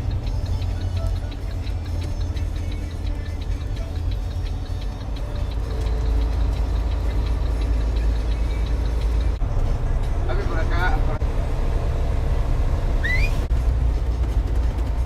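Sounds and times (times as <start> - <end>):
fast regular ticking: 0.0 - 9.4
truck engine and road rumble: 0.0 - 15.0.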